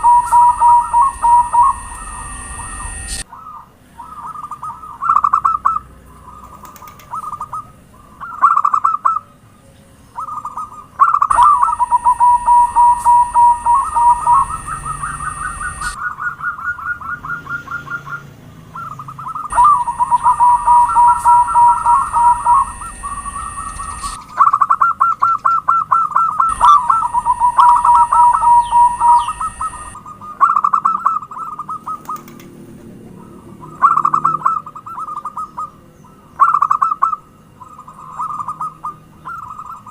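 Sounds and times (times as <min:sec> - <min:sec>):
low hum: 0:00.0 - 0:03.2, 0:11.3 - 0:16.0, 0:19.5 - 0:24.2, 0:26.5 - 0:30.0
faint steady high tone: 0:00.0 - 0:03.3, 0:11.3 - 0:16.0, 0:19.5 - 0:24.2, 0:26.5 - 0:30.0
doves cooing: 0:00.0 - 0:09.3, 0:10.2 - 0:32.4.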